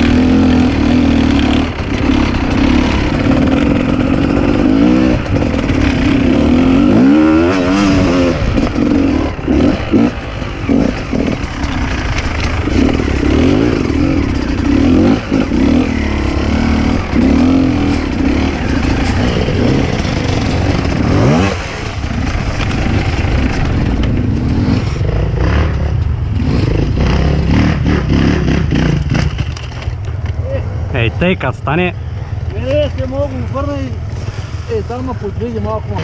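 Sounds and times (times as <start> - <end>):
dirt bike engine revving: 0.0 - 29.9.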